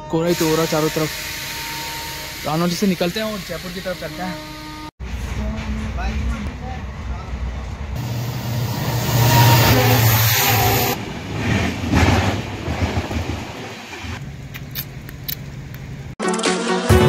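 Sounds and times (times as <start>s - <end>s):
passenger train passing: 0.0s - 16.2s
rail clicks: 8.0s - 16.1s
music: 16.2s - 17.0s.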